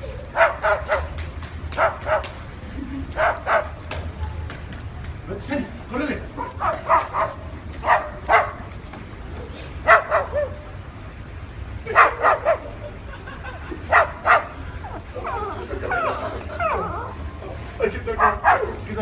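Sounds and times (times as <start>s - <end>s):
dog-like barks: 0.3s - 1.2s, 1.8s - 2.4s, 3.2s - 3.8s, 6.4s - 8.7s, 9.8s - 10.6s, 11.9s - 12.7s, 13.9s - 14.6s, 18.2s - 18.8s.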